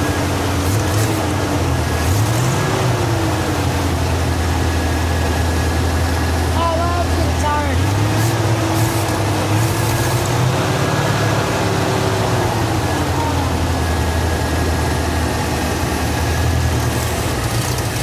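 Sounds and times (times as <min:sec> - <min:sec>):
truck engine running: 0:00.0 - 0:18.0.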